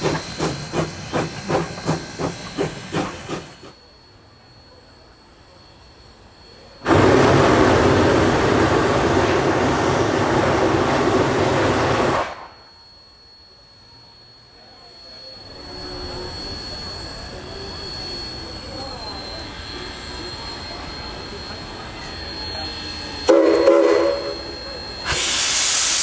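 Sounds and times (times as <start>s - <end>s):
steam locomotive chuffing: 0.0s - 4.0s, 5.7s - 12.6s, 15.5s - 26.0s
venting steam hiss: 25.0s - 26.0s.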